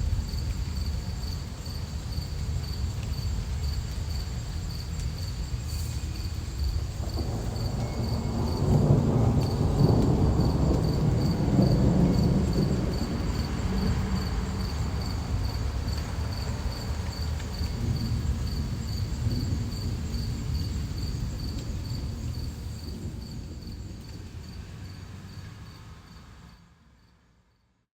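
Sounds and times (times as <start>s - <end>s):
high pulsing cricket chirp: 0.0s - 26.4s
low thunder-like rumble: 5.5s - 25.0s.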